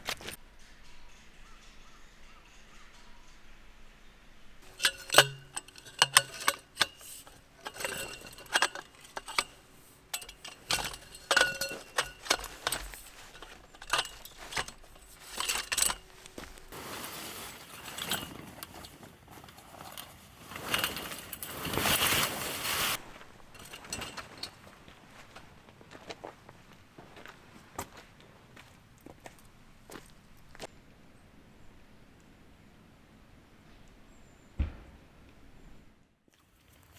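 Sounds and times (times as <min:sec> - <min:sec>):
metal pieces clinking: 0:04.6 - 0:23.0, 0:23.6 - 0:24.6
rustling hissing noise: 0:04.6 - 0:24.4.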